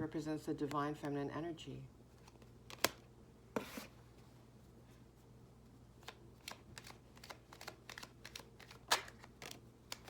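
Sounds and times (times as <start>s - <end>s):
cards rustling: 2.1s - 3.0s, 6.0s - 10.0s.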